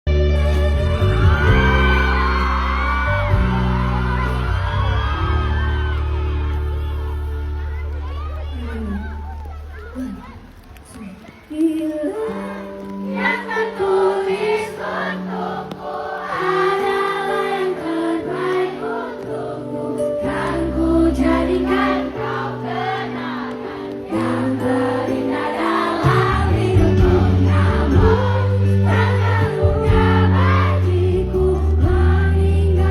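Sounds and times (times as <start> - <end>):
live pop band playing: 0.1 - 7.9, 23.8 - 32.9
crowd singing together: 12.0 - 32.9.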